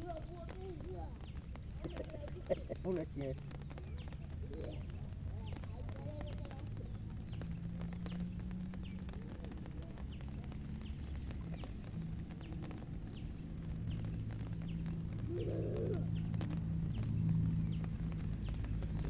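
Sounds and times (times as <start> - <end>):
drops tapping: 0.0 - 19.0
rain falling on a pond: 0.0 - 19.0.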